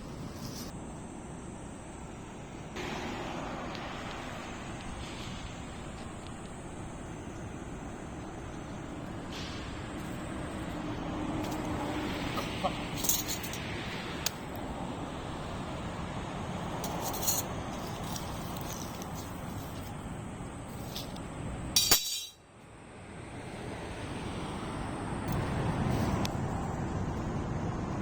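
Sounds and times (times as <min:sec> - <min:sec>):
light clinks: 0:12.4 - 0:14.4, 0:21.8 - 0:22.4.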